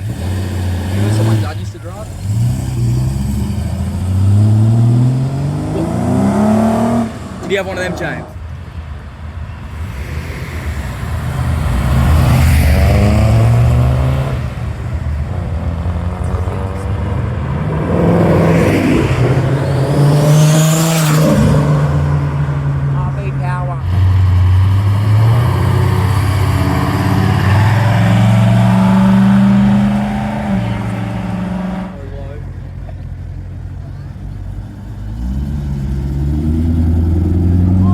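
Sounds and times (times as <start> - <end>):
car engine driving past: 9.5 - 23.1, 23.8 - 32.8.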